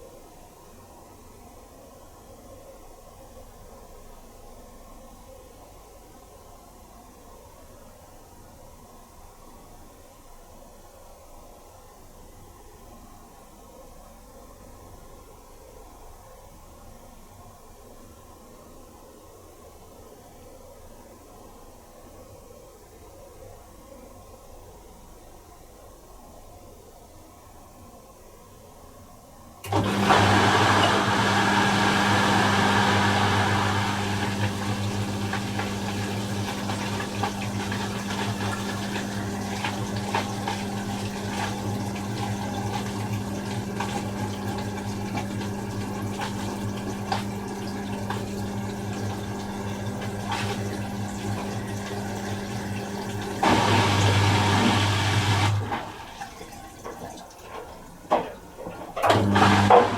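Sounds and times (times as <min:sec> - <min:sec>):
washing machine pump hum: 0:29.6 - 0:59.9.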